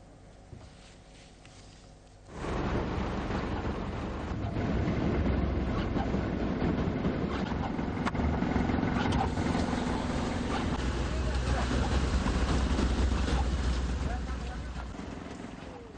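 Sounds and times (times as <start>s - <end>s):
wind: 0.0s - 15.9s
heavy rain: 2.3s - 7.2s, 9.3s - 15.9s
vehicle traffic passing: 2.3s - 15.9s.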